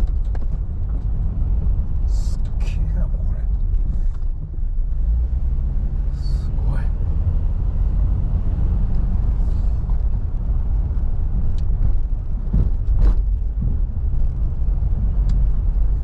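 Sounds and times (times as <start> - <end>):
car engine and road noise: 0.0 - 16.0
knocks and rattles: 11.7 - 14.4.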